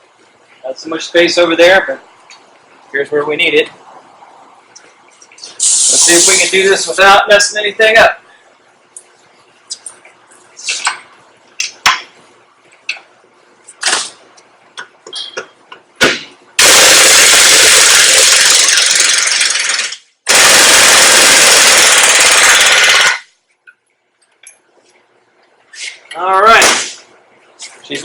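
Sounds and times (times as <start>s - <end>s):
impact wrench hammering: 16.0s - 23.2s.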